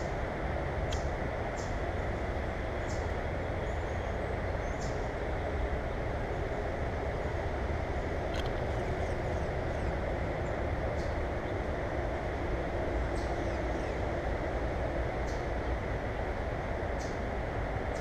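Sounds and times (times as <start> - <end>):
steady background noise: 0.0 - 18.0
small birds chirping: 2.8 - 5.1.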